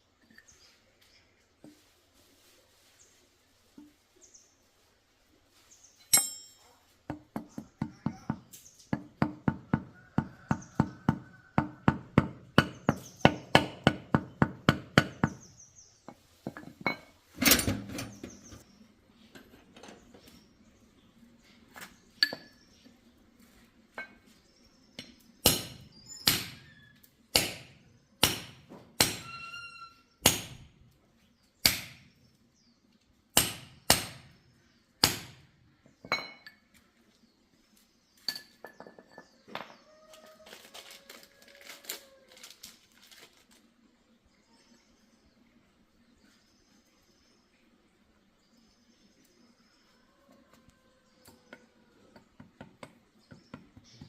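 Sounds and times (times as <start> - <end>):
hammer striking metal: 6.1 - 6.6, 27.3 - 29.4.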